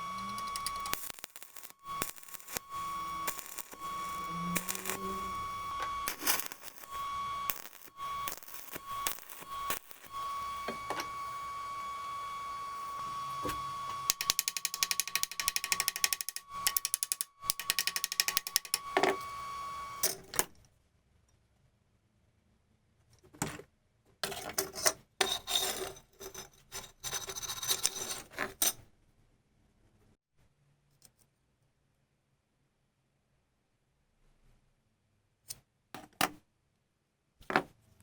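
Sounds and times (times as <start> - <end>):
steady hum: 0.0 - 20.1
mechanism clicking fast: 14.1 - 18.8.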